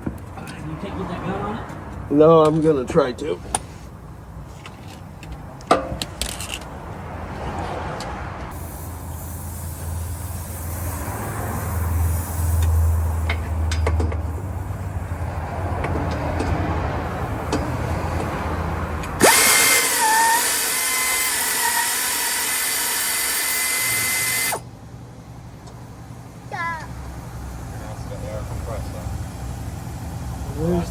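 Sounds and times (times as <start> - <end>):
air impact gun whine: 19.1 - 24.7.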